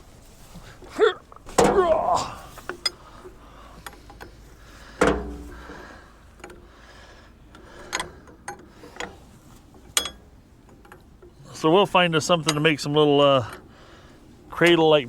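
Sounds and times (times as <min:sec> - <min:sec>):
metallic clanks and knocks: 0:01.5 - 0:02.0, 0:02.6 - 0:06.7, 0:07.6 - 0:11.4.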